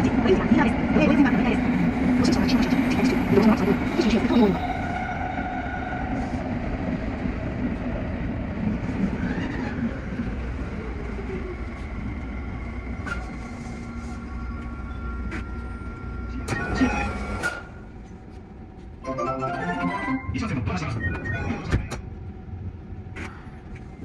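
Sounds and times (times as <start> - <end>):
electric train rumbling: 0.0 - 24.0
faint whining tones: 0.2 - 19.0.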